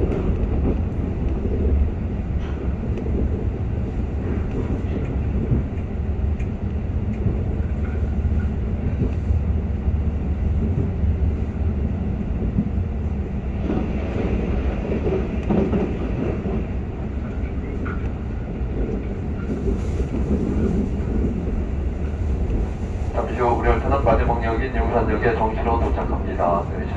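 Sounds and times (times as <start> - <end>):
train rumble from inside carriage: 0.0 - 26.9.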